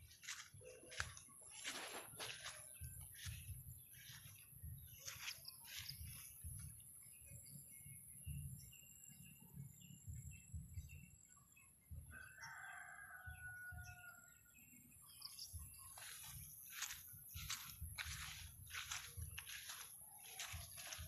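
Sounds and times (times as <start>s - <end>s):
small birds chirping: 0.0s - 21.0s
faint rooster crowing: 12.1s - 14.6s.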